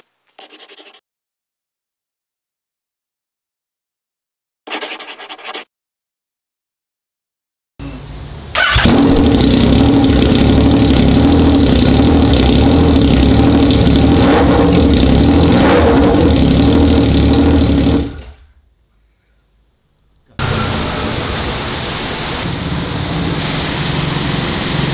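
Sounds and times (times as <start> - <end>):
motorcycle exhaust note: 7.8 - 18.4.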